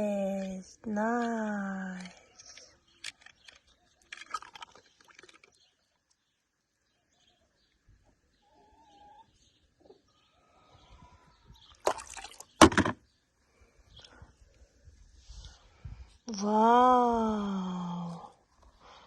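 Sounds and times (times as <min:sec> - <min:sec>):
toys clattering: 0:02.0 - 0:04.4.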